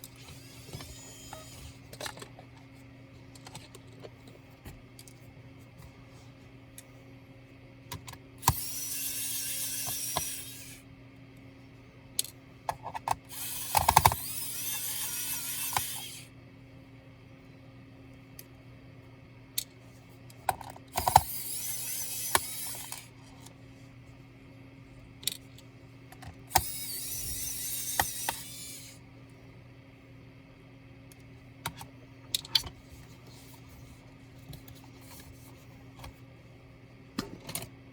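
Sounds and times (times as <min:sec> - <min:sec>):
electric screwdriver running: 0:00.2 - 0:01.7, 0:08.4 - 0:10.8, 0:13.3 - 0:16.3, 0:20.9 - 0:23.1, 0:26.5 - 0:29.0
screws and tool clicking: 0:08.4 - 0:10.8, 0:13.3 - 0:16.2, 0:20.9 - 0:23.1, 0:26.5 - 0:29.0.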